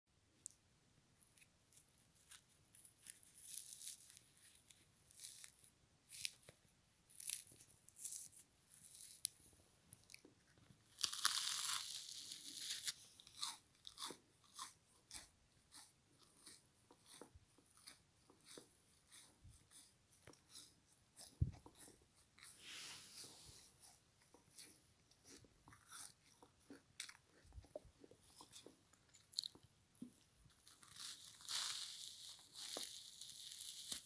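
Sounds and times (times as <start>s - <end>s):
chewing frozen sponge crunches: 1.7s - 22.6s, 30.5s - 34.0s.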